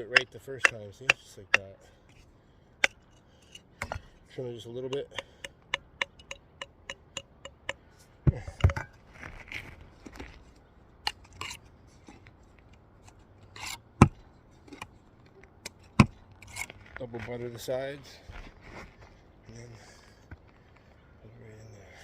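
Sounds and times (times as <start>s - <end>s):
chipping taps on brick: 4.9s - 8.9s, 15.6s - 16.2s.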